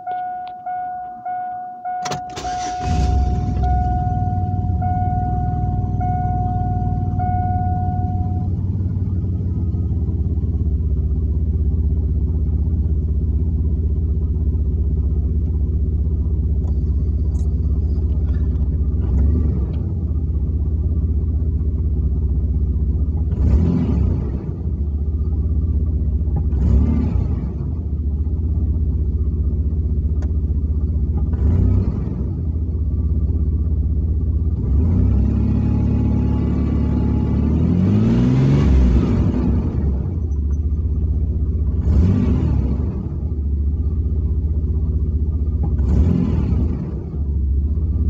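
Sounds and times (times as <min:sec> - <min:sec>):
warning chime: 0:00.0 - 0:09.0
engine idling: 0:00.0 - 0:34.8, 0:39.2 - 0:48.0.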